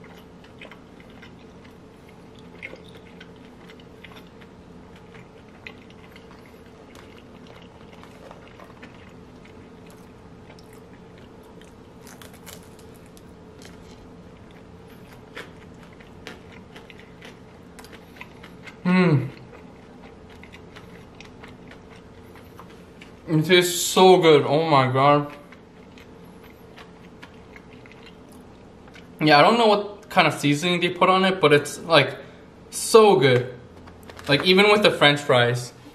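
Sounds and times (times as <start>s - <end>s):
crunchy chewing: 0.0s - 23.3s, 25.2s - 29.2s
faint steady hum: 0.0s - 35.9s.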